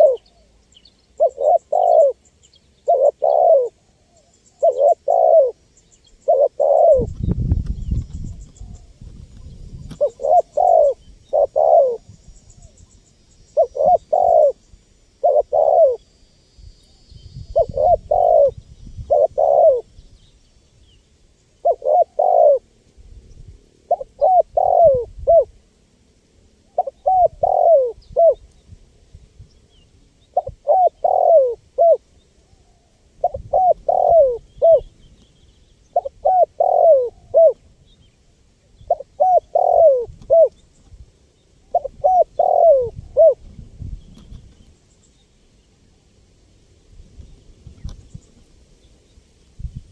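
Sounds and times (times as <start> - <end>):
dove cooing: 0.0 - 5.6, 6.2 - 12.8, 13.5 - 14.6, 15.2 - 16.1, 17.4 - 19.9, 21.6 - 22.8, 23.8 - 25.6, 26.7 - 28.4, 30.3 - 35.0, 35.9 - 37.7, 38.8 - 40.6, 41.6 - 43.5.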